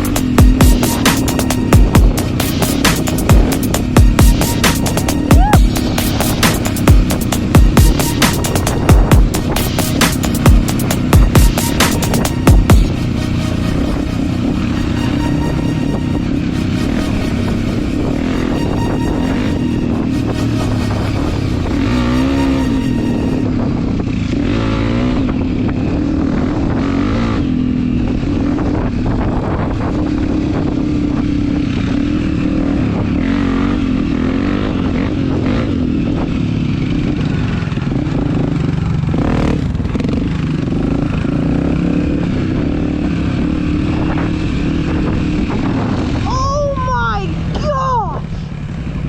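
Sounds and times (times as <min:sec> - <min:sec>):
dirt bike engine revving: 0:00.0 - 0:23.5, 0:36.8 - 0:45.6.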